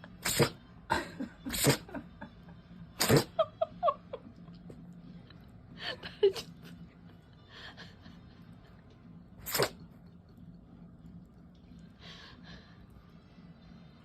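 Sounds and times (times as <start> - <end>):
dog sneezing: 0.1 - 0.7, 1.4 - 2.0, 3.0 - 3.4, 9.4 - 9.9.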